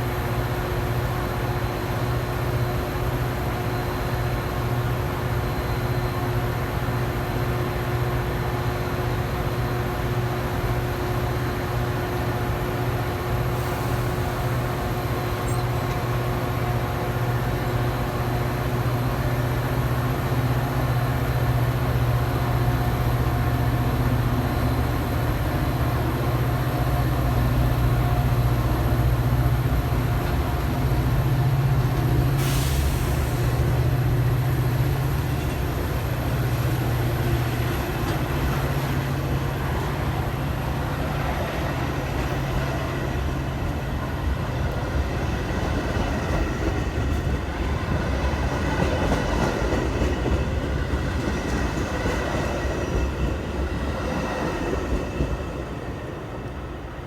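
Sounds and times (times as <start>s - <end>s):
train engine rumble: 0.0s - 57.0s
sharp air hiss: 13.5s - 15.5s, 32.3s - 33.8s.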